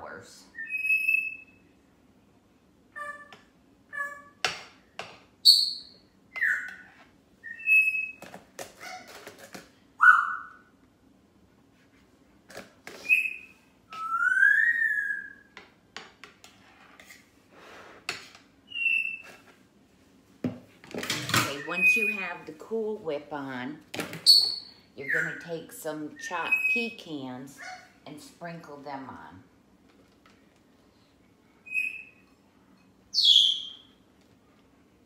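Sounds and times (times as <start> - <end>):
pet bird whistling and chirping: 0.5 - 1.6, 3.0 - 4.4, 5.4 - 8.2, 10.0 - 10.6, 13.0 - 15.5, 18.7 - 19.3, 21.5 - 22.4, 24.3 - 25.5, 26.2 - 26.9, 31.6 - 32.3, 33.1 - 34.0.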